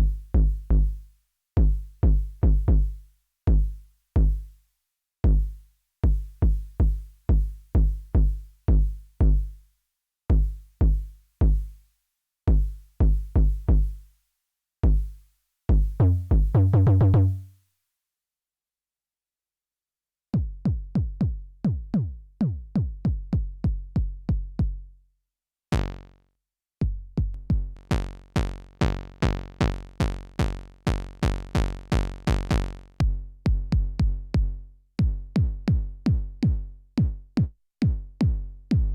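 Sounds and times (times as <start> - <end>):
drum machine kick drum: 0.0 - 0.9, 1.6 - 4.5, 5.2 - 9.6, 10.3 - 11.8, 12.5 - 14.0, 14.8 - 17.4, 20.4 - 24.9, 25.7 - 26.1, 26.8 - 38.9.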